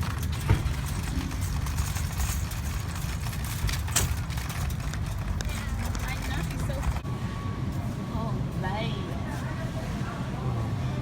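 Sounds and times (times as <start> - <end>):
shopping cart wheels rumbling: 0.0 - 7.1.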